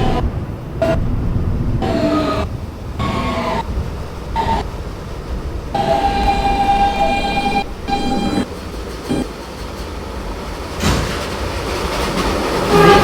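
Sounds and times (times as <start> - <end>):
subway train horn: 0.0 - 8.5, 12.6 - 13.0.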